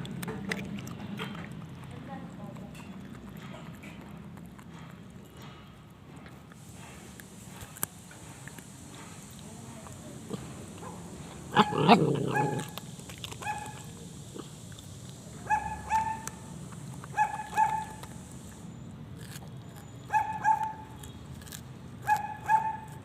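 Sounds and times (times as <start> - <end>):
small dog yipping: 13.4 - 13.9, 15.4 - 16.4, 17.0 - 18.1, 20.1 - 21.0, 22.0 - 23.0.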